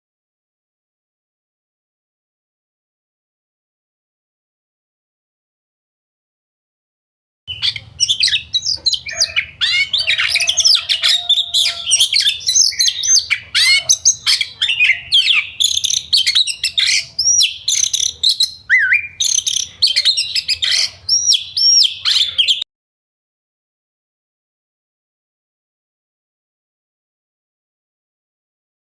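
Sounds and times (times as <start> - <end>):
birds singing bubbly chirps: 7.5 - 22.6.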